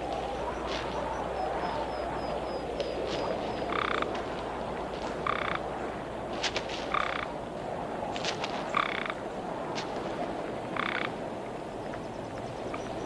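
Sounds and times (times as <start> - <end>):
toads calling: 3.5 - 4.1, 5.2 - 5.6, 10.8 - 11.1.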